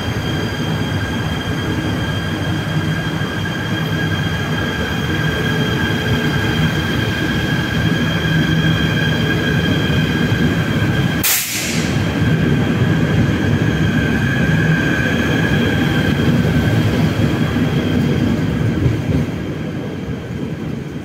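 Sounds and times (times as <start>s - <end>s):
electric train whine: 0.0s - 21.0s
train running gear rumble: 0.0s - 21.0s
short hiss: 11.2s - 12.0s.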